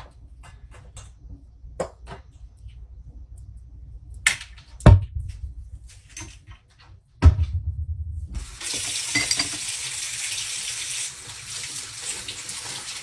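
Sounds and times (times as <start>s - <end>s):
thud: 7.2s - 8.4s
water running into sink: 8.4s - 13.0s
clink of dishware: 9.1s - 9.6s.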